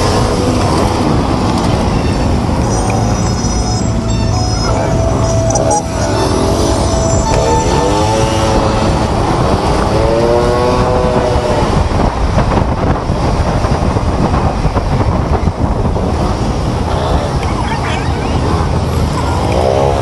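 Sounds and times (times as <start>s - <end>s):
sliding pitched tone: 0.0s - 12.2s
traffic noise: 0.0s - 20.0s
wind rumble: 0.0s - 20.0s.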